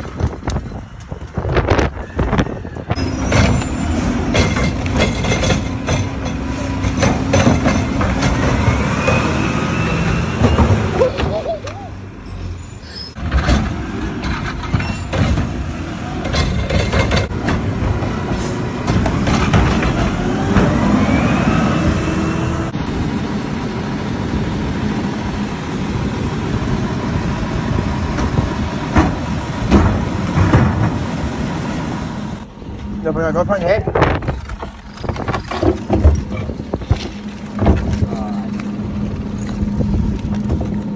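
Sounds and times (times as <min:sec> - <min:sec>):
garbage truck machine noise: 0:00.0 - 0:40.9
metallic clanks and knocks: 0:04.2 - 0:08.8, 0:16.2 - 0:20.1
rising and falling whine: 0:19.2 - 0:28.9.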